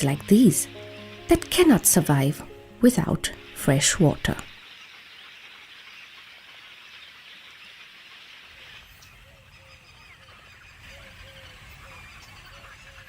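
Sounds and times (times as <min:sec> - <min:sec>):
dense bird chatter: 0:03.0 - 0:13.0.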